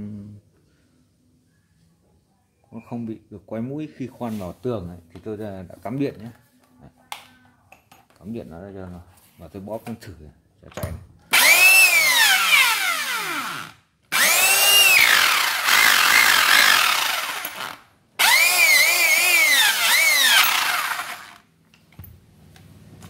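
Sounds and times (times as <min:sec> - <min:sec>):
rotary hammer motor whining: 0:11.4 - 0:21.4.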